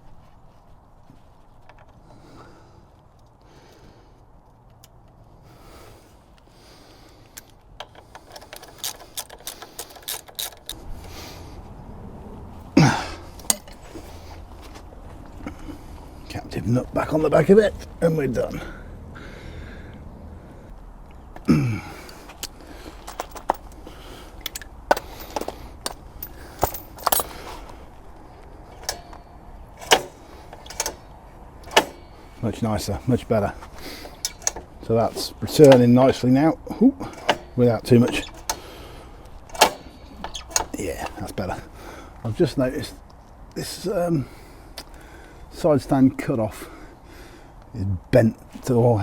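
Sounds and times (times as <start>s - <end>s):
metallic clicks and clanks: 7.4s - 10.8s, 13.4s - 13.9s, 22.4s - 23.8s, 24.4s - 27.6s, 28.7s - 32.2s, 33.8s - 36.2s, 37.0s - 38.7s, 39.4s - 41.3s
metal tools and bolts clinking: 7.8s - 10.8s, 13.4s - 14.1s, 22.4s - 27.7s, 28.6s - 31.0s, 31.6s - 32.2s, 32.8s - 36.4s, 37.0s - 38.6s, 39.4s - 41.4s.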